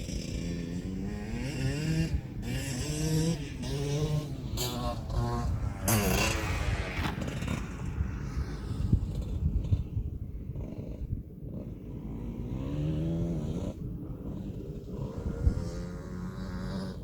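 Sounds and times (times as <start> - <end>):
low crackly rumble: 3.1 - 12.0.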